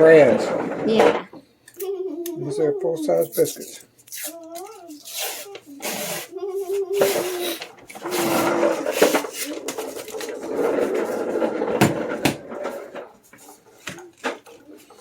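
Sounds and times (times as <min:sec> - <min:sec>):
packaging rustling and scraping: 0:03.4 - 0:15.0.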